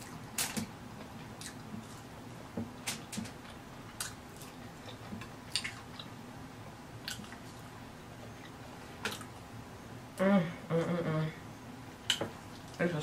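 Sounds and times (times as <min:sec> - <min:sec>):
person chewing with wet clicks: 0:00.0 - 0:02.0, 0:03.0 - 0:06.2, 0:07.0 - 0:07.7, 0:08.3 - 0:09.5.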